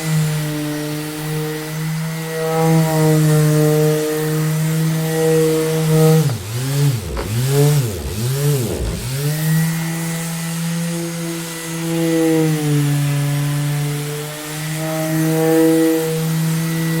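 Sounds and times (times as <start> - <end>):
orbital sander motor humming: 0.0 - 17.0.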